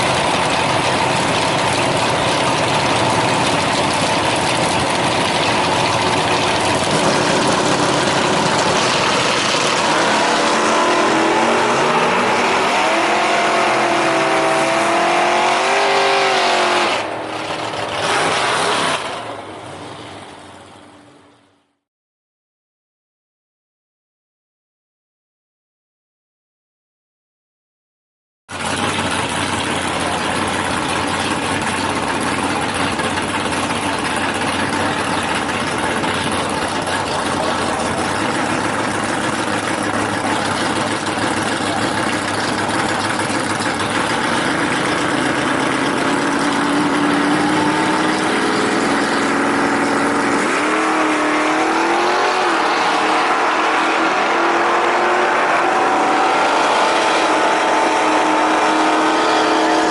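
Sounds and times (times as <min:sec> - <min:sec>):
drag racing engines running: 0:00.0 - 0:21.7, 0:28.5 - 0:59.9
engine revving up sharply: 0:06.0 - 0:19.5, 0:28.5 - 0:59.9.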